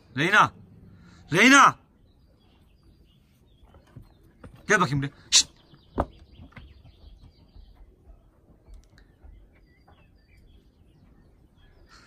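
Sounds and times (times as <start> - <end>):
faint bird chirps: 1.0 - 12.0
faint clicks: 8.7 - 9.1.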